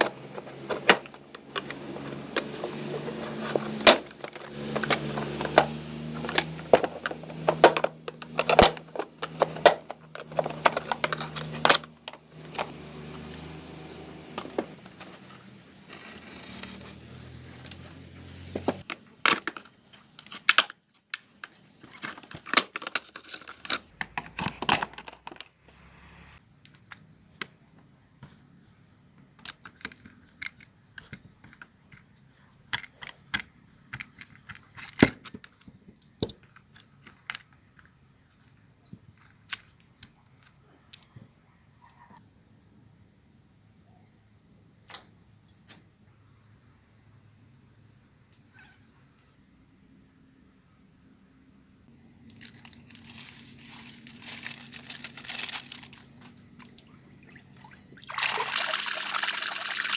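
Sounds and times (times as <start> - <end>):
metal parts and tools clinking: 0.0 - 25.5, 52.3 - 56.9.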